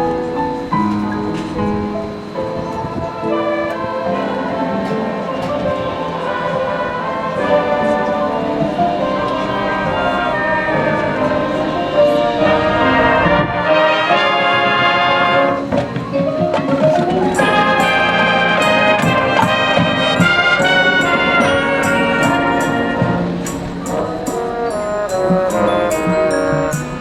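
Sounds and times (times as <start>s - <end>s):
brass chords: 1.3s - 27.0s
percussion strikes: 15.5s - 27.0s.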